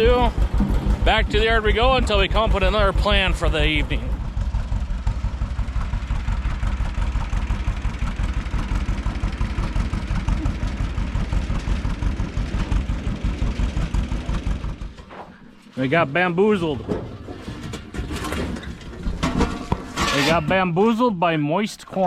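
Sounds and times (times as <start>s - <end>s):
tractor engine running: 0.0s - 15.7s.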